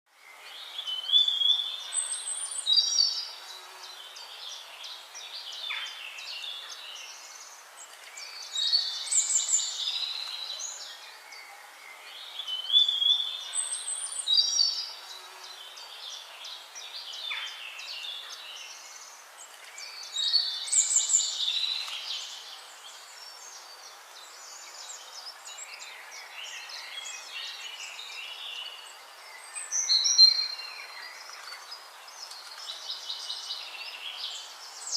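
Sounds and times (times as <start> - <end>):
birds chirping and warbling: 0.1 - 34.9
faint hiss: 0.1 - 34.9.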